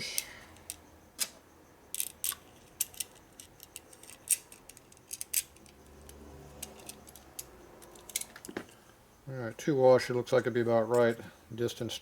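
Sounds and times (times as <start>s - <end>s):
metal washers clinking: 2.0s - 8.8s.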